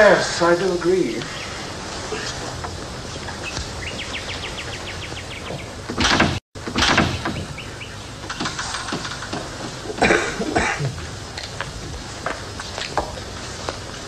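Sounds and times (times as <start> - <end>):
recording hiss: 0.0 - 14.0
bird trilling: 3.0 - 5.9, 7.0 - 9.4.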